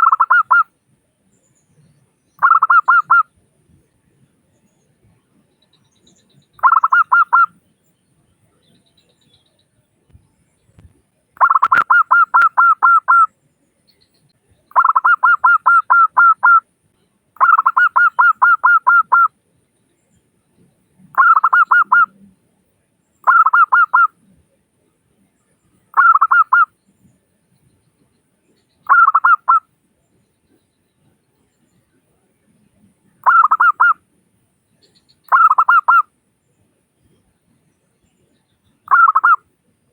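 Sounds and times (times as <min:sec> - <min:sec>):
dove cooing: 0:00.0 - 0:00.6, 0:02.4 - 0:03.2, 0:06.6 - 0:07.5, 0:11.4 - 0:13.3, 0:14.7 - 0:16.6, 0:17.4 - 0:19.3, 0:21.2 - 0:22.2, 0:23.3 - 0:24.1, 0:26.0 - 0:26.7, 0:28.9 - 0:29.6, 0:33.2 - 0:34.0, 0:35.3 - 0:36.0, 0:38.9 - 0:39.4.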